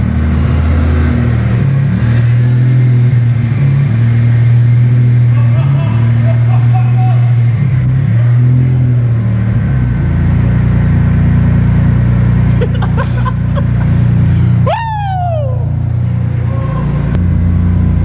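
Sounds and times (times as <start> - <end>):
car engine droning: 0.0 - 18.0
turbo whistle: 14.3 - 17.2.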